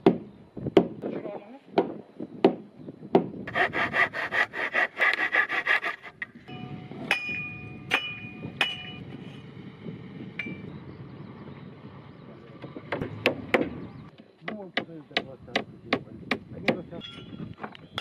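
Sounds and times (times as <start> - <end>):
hand tool rasping wood: 3.5 - 6.2
ringing metallic clinks: 10.4 - 10.7, 17.0 - 17.5.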